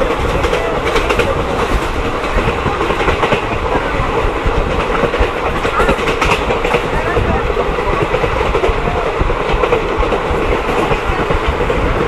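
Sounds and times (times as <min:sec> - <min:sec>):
train rumbling: 0:00.0 - 0:12.0
wheels clattering over rails: 0:00.0 - 0:12.0.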